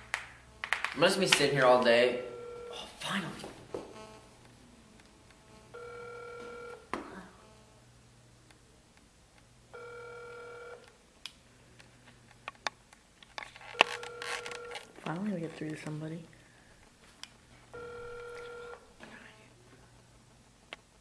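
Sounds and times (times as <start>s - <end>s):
two-pitch phone ringing tone: 1.8s - 3.0s, 5.7s - 6.9s, 9.7s - 10.8s, 13.8s - 14.9s, 17.7s - 18.9s.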